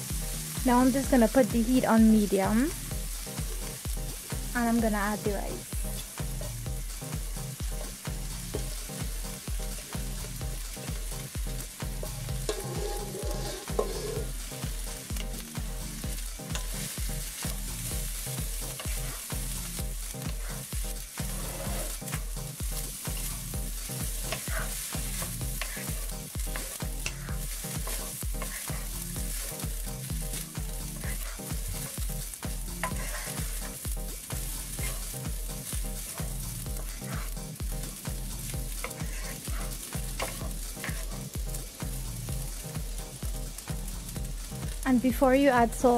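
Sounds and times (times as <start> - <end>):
rice and vegetables sizzling in pan: 0.0 - 45.9
wooden spatula scraping pan: 12.4 - 14.4, 20.2 - 22.2, 23.9 - 29.5, 31.0 - 32.0, 32.8 - 35.3, 36.0 - 37.4, 38.7 - 41.3.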